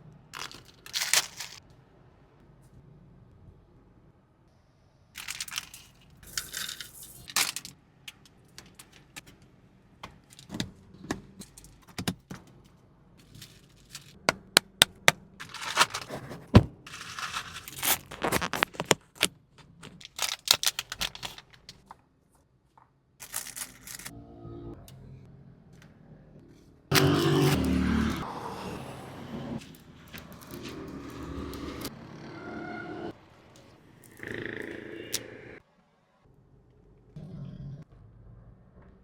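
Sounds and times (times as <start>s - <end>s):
packaging crinkling and tearing: 0.4s - 1.6s, 15.4s - 16.2s, 16.9s - 21.8s.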